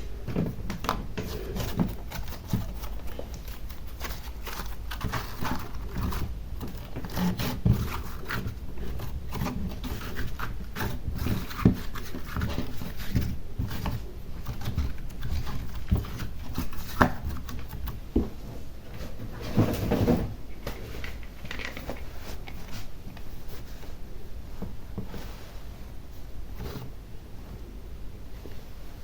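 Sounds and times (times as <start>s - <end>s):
slime squishing by hand: 0.0s - 18.1s.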